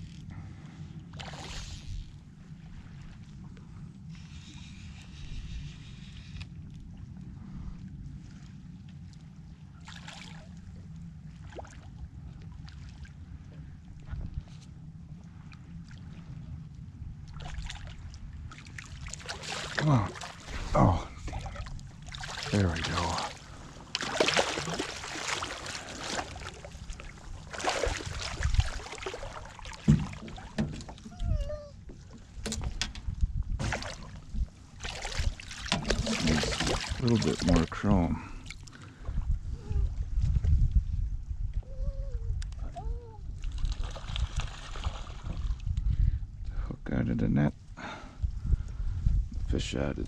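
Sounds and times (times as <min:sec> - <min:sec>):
wind on microphone: 0:00.0 - 0:09.8, 0:10.5 - 0:24.0, 0:24.6 - 0:46.9, 0:47.5 - 0:50.0
water splashing and sloshing: 0:00.0 - 0:46.1
water splashing: 0:17.3 - 0:31.2, 0:33.6 - 0:38.8
dull knocks against boat: 0:29.8 - 0:31.1.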